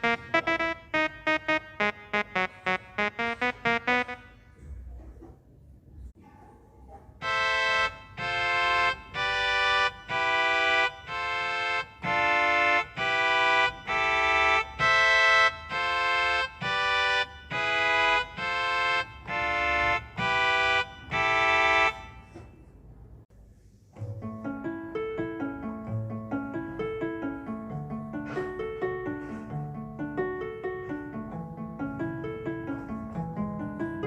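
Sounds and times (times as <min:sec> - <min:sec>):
keyboard playing held chords: 0:00.0 - 0:04.4, 0:07.2 - 0:22.3.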